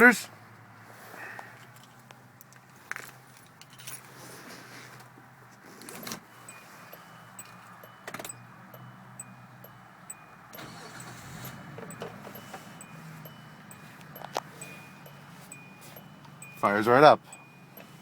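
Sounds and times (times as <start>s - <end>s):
car keys jangling: 1.7s - 4.1s, 5.9s - 18.0s
high electronic pips: 6.5s - 18.0s.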